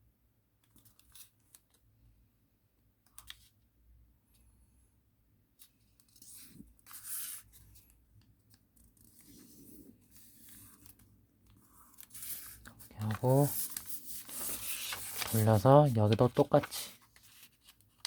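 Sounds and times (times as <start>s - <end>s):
paper rustling and crackling: 9.0s - 18.0s.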